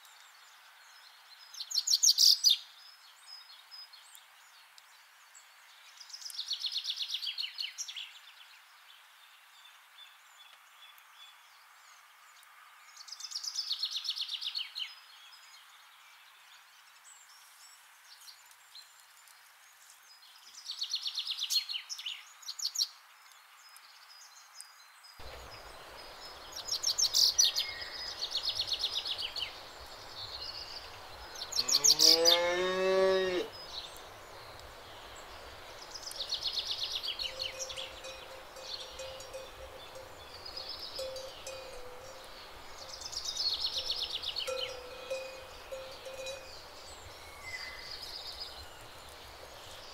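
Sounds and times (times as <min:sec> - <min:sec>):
cow mooing: 0:31.6 - 0:33.5
high chirping trills: 0:35.3 - 0:48.6.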